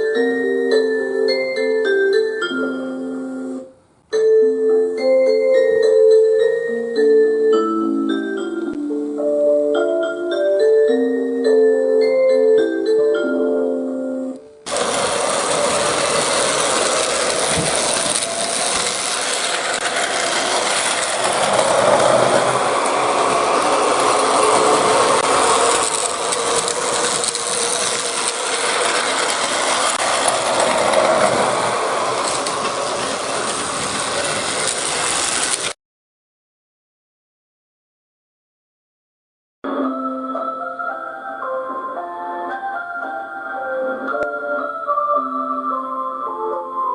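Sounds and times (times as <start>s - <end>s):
toy train motor whirring and rattling: 14.7s - 35.8s.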